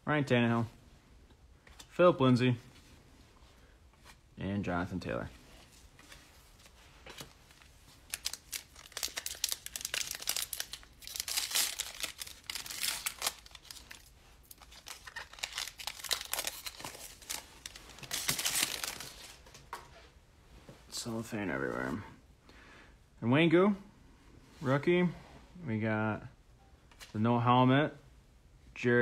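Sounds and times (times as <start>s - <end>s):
cellophane tearing and crinkling: 7.5s - 19.6s.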